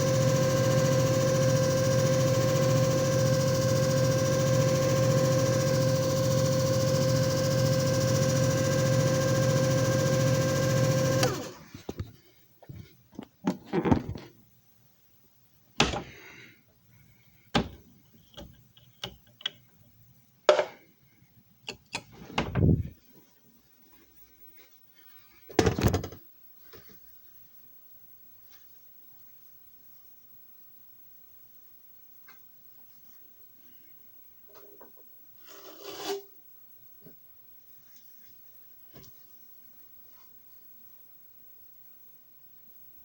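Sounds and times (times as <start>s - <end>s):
machine motor hum and whine: 0.0s - 11.5s.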